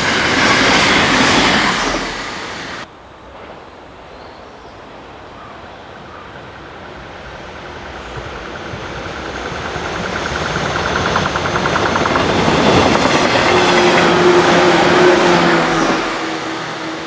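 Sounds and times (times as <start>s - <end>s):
train wheels rolling on rails: 0.0s - 3.7s, 6.3s - 17.0s.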